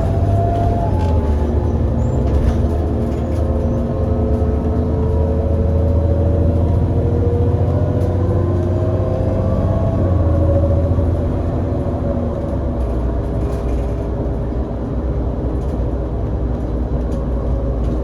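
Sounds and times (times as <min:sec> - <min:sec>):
bus engine accelerating: 0:00.0 - 0:18.0.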